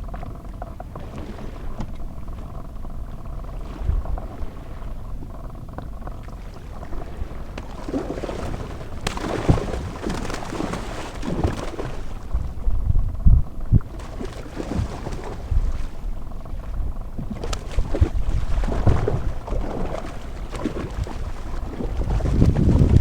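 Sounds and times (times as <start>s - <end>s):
boat motor low rumble: 0.0s - 23.0s
water against hull: 0.0s - 23.0s
water splashing and rushing: 6.6s - 23.0s.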